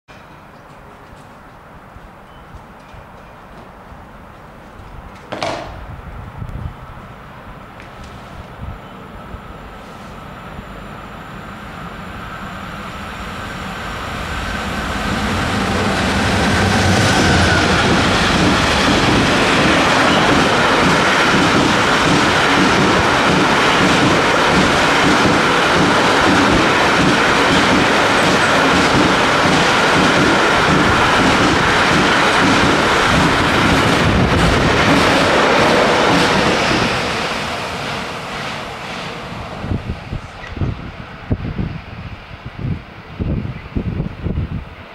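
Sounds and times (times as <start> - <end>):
freight train rumbling past: 5.4 - 44.9.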